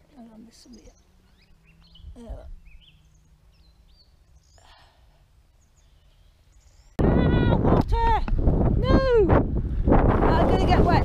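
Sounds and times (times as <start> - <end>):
songbird chirps: 0.0 - 7.0.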